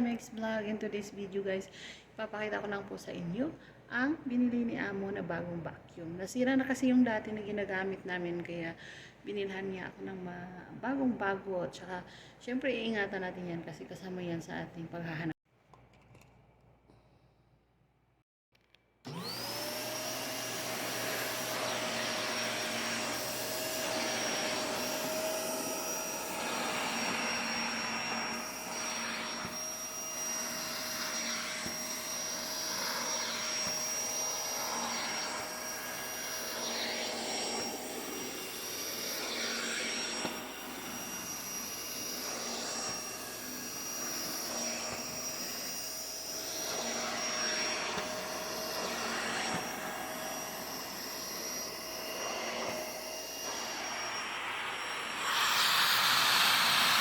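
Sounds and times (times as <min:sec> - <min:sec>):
vacuum cleaner running: 0:19.1 - 0:57.0.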